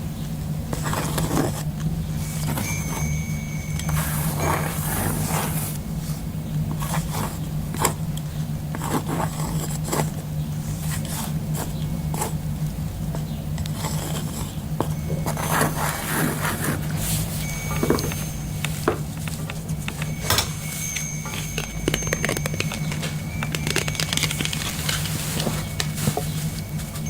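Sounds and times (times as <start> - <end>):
steady low hum: 0.0 - 27.0
pen scratching on cork: 8.7 - 10.2, 13.7 - 17.0.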